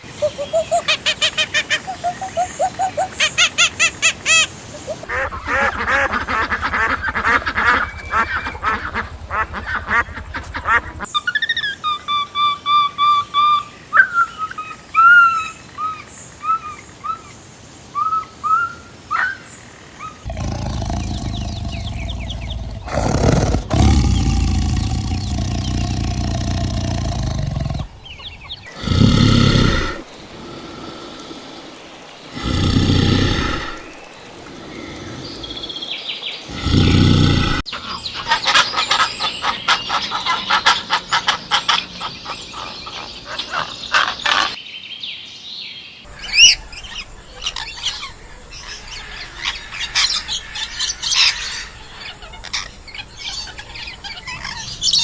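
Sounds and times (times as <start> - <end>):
birds chirping rapidly: 0.0 - 11.1, 20.3 - 40.0
loud low animal call: 0.0 - 11.1, 20.3 - 35.8, 36.5 - 37.7
pitched animal calls: 0.0 - 11.1, 20.3 - 31.6, 32.3 - 35.6.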